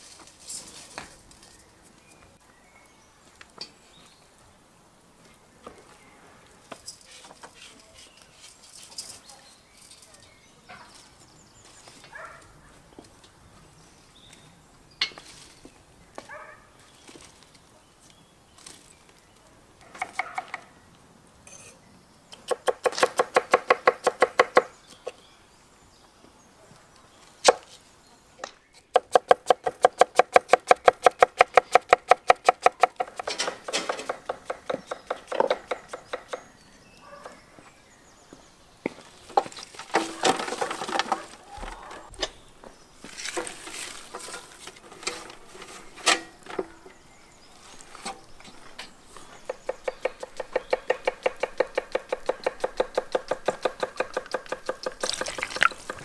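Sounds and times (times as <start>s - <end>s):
kitchenware clatter: 33.2s - 34.2s.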